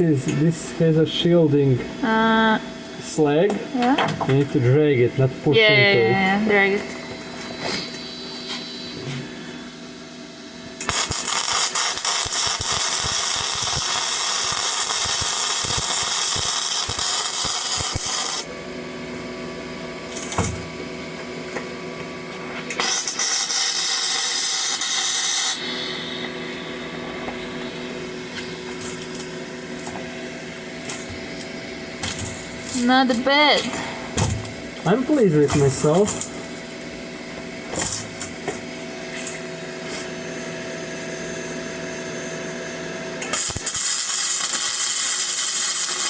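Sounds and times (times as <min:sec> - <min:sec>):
welder machine hum: 0:00.0 - 0:46.0
welding arc hissing crackle: 0:06.7 - 0:09.8, 0:10.8 - 0:18.6, 0:19.8 - 0:20.9, 0:22.4 - 0:33.7, 0:34.4 - 0:36.9, 0:37.8 - 0:40.2, 0:43.2 - 0:46.0.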